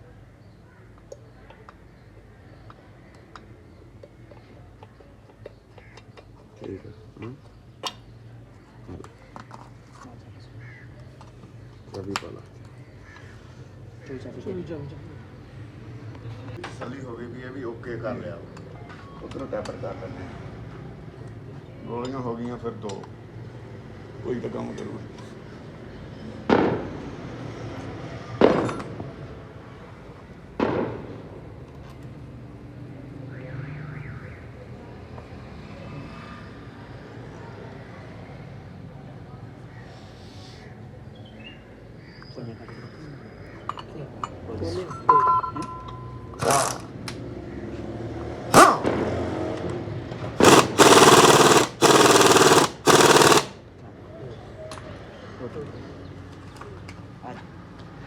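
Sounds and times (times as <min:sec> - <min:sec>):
loud sharp bangs: 0:48.5 - 0:49.1, 0:50.4 - 0:53.6
air tool rattling bursts: 0:48.6 - 0:48.8, 0:50.4 - 0:53.6.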